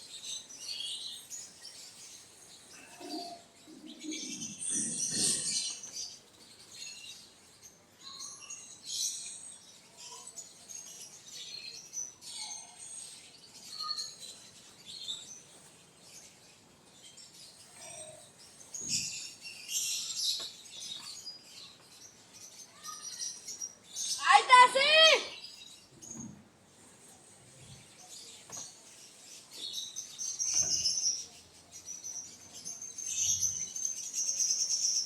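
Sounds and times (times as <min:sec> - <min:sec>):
birds chirping: 0:00.0 - 0:12.0, 0:13.3 - 0:35.0.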